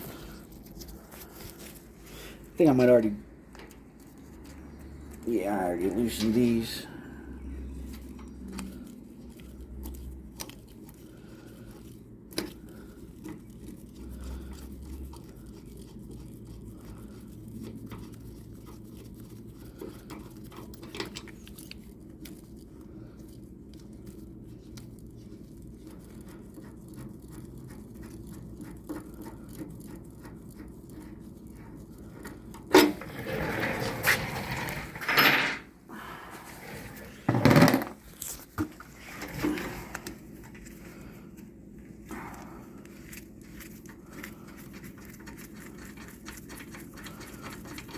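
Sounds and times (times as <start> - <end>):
tools clattering and scraping: 32.7 - 35.8, 36.5 - 40.6.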